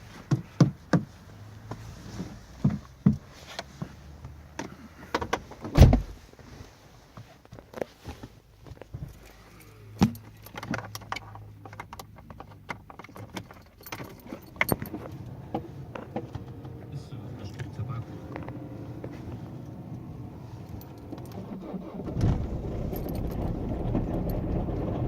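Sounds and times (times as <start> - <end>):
heavy thump: 5.8 - 6.2
car keys jangling: 9.0 - 15.4, 20.5 - 24.8.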